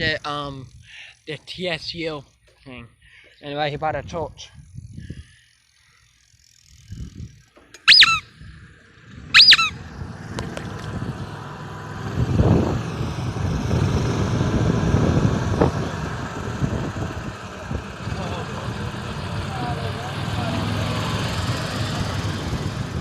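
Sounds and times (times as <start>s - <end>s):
road traffic rumble: 4.6s - 23.0s
high-pitched brake squeals: 7.8s - 8.3s, 9.3s - 9.8s.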